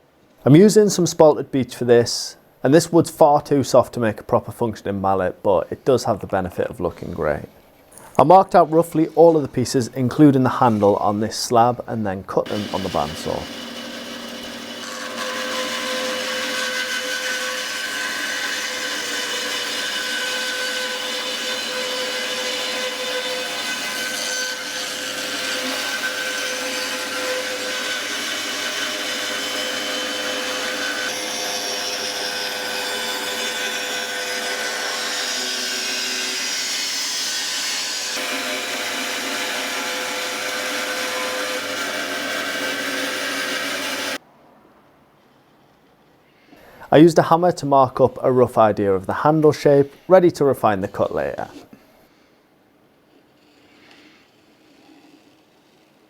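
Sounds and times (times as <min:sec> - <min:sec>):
bandsaw cutting wood: 0:12.4 - 0:44.2, 0:53.4 - 0:56.0.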